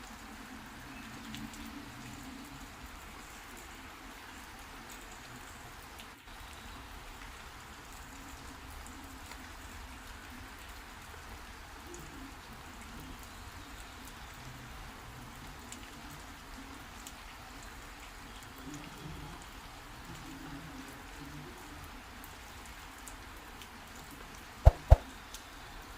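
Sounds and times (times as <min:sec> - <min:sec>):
sharp raindrop ticks: 0:23.0 - 0:25.5
heavy rain hissing: 0:23.4 - 0:25.9.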